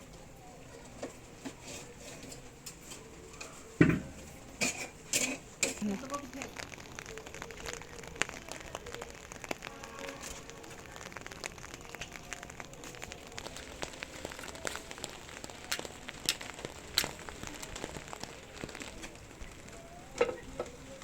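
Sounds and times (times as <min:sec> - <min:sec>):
rain pattering: 0:00.0 - 0:21.0.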